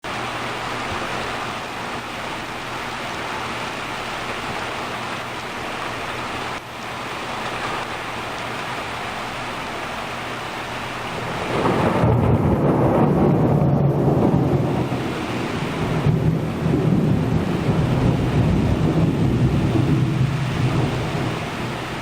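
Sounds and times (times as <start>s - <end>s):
heavy rain: 0.0s - 22.0s
thunder rumble: 11.1s - 22.0s.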